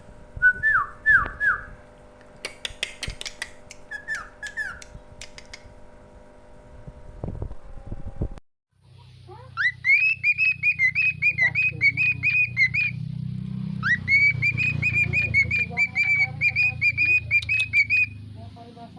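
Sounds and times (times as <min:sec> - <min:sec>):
steady low hum: 0:00.0 - 0:18.9
songbird singing whistled notes: 0:03.9 - 0:04.9, 0:09.6 - 0:13.0, 0:13.8 - 0:18.2.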